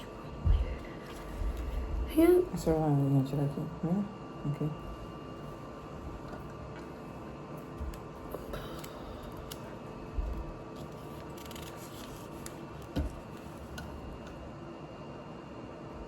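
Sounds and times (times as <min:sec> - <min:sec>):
low room hum: 0:00.0 - 0:16.0
soft low thumps: 0:00.4 - 0:00.8.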